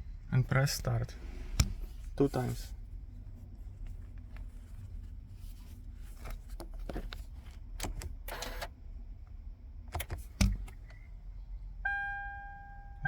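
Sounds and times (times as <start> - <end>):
car buttons clicking: 7.5 - 8.7, 9.9 - 11.0.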